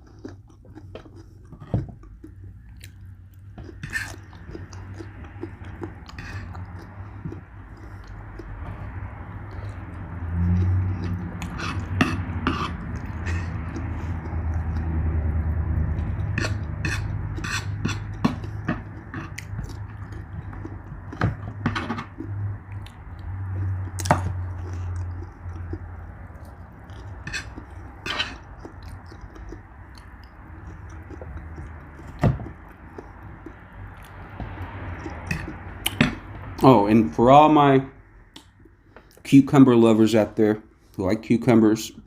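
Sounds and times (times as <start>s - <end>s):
person chewing: 0.0s - 36.7s, 38.0s - 39.3s.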